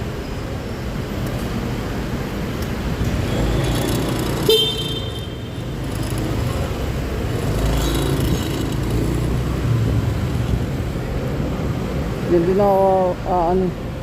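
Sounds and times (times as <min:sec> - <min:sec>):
scooter engine and road noise: 0:00.0 - 0:14.0
horn beep: 0:03.2 - 0:05.6.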